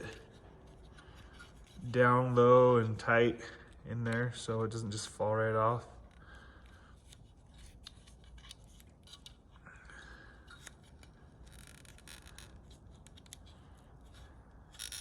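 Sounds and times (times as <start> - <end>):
electrical tape crinkling and rubbing: 0.0 - 2.1, 6.0 - 9.6, 10.5 - 15.0.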